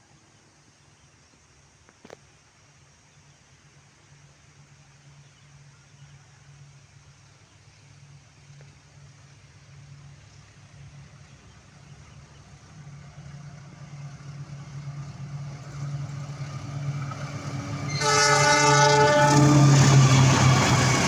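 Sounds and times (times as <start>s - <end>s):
diesel locomotive engine hum: 0.0s - 21.0s
train horn blast: 17.3s - 21.0s.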